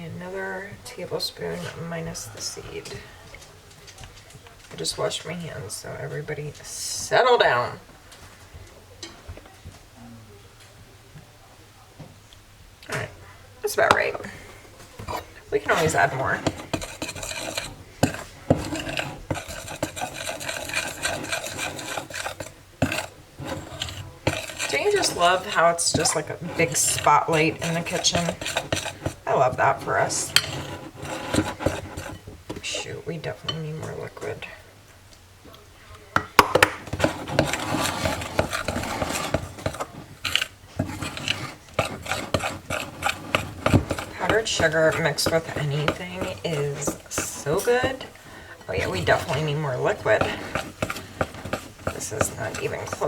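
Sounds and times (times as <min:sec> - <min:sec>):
utensil scraping glass bowl: 0:13.8 - 0:34.4, 0:36.5 - 0:53.0.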